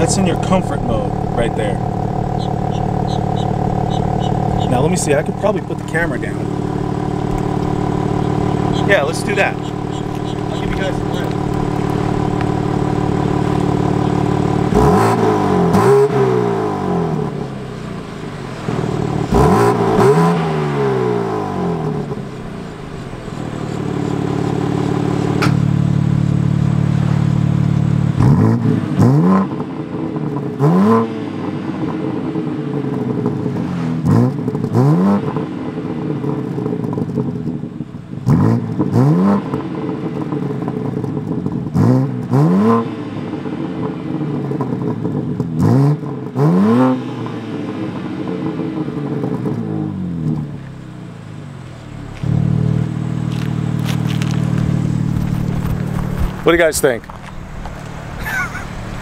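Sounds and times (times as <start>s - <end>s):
engine rev blips: 0.0s - 29.6s
car engine revving: 0.0s - 59.0s.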